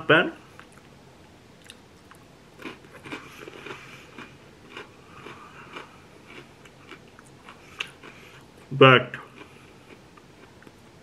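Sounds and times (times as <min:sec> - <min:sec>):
crunchy pretzel chewing: 0:01.6 - 0:11.0.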